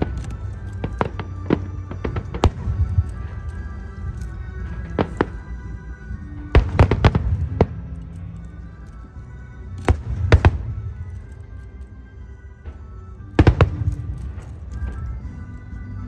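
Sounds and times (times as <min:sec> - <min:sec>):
music playing: 0:00.0 - 0:16.0
fireworks bursting in sharp bangs: 0:00.8 - 0:03.4, 0:06.4 - 0:08.0, 0:09.9 - 0:11.0, 0:13.3 - 0:14.9.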